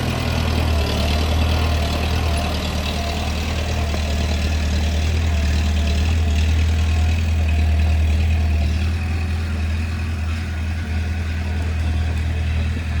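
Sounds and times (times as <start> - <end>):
bulldozer diesel engine humming: 0.0 - 13.0.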